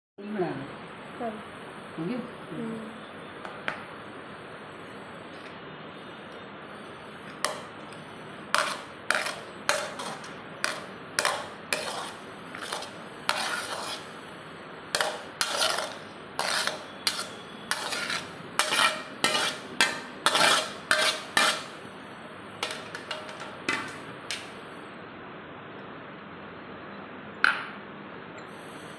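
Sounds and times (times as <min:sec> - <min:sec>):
metal spoon scraping a pot: 0:08.5 - 0:14.2, 0:14.9 - 0:21.8, 0:22.6 - 0:24.5.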